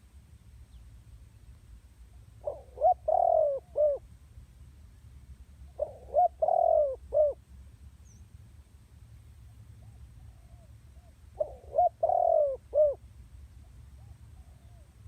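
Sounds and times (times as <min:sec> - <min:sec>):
dove cooing: 0:02.4 - 0:04.0, 0:05.7 - 0:07.4, 0:09.8 - 0:13.0, 0:13.9 - 0:15.0.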